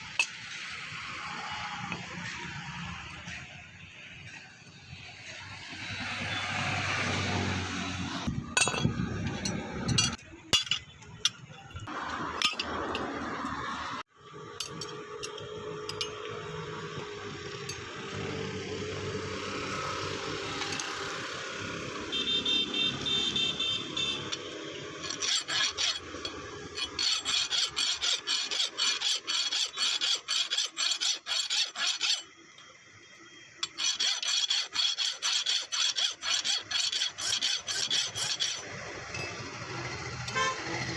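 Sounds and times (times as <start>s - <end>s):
hand file rasping on metal: 24.1s - 32.3s, 33.6s - 38.8s.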